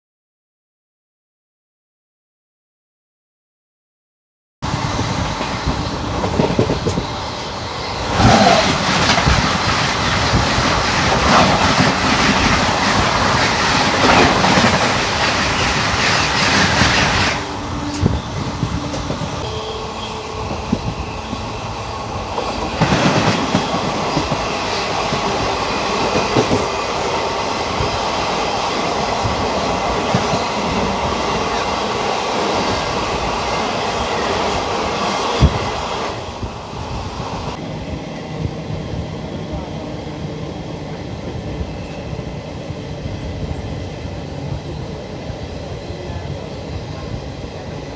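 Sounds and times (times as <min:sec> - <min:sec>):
train wheels clattering over rails: 0:04.8 - 0:37.6.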